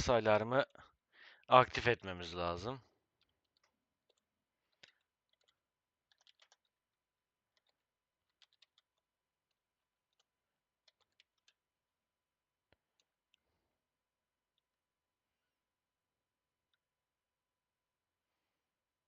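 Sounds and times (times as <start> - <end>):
faint keyboard typing: 1.7 - 11.8, 12.7 - 13.7.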